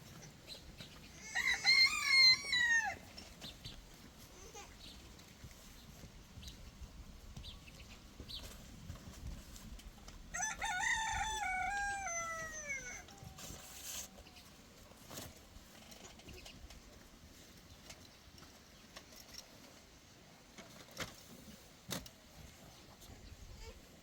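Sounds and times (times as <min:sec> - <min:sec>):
rooster crowing: 0:01.2 - 0:03.1, 0:10.3 - 0:13.5.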